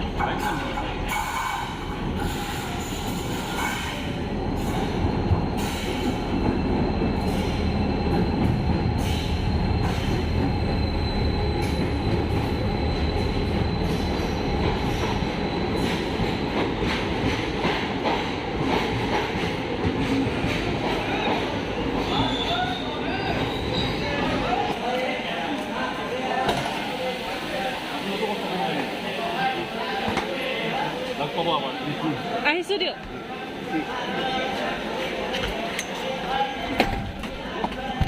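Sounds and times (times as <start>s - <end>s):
train coaches rumbling past: 0.0s - 38.0s
high wheel squeal: 22.0s - 24.3s.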